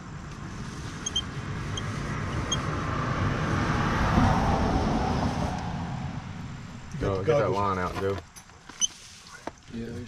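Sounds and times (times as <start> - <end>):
vehicle passing by: 0.3 - 7.1.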